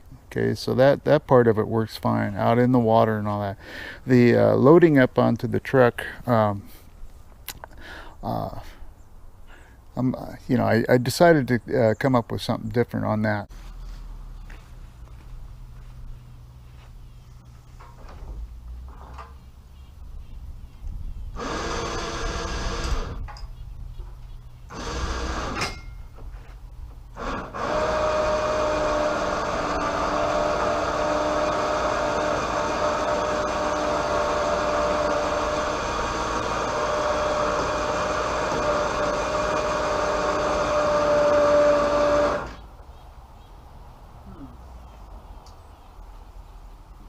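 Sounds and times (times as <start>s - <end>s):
small motor whining: 21.3s - 23.2s, 24.7s - 25.8s, 27.1s - 42.6s.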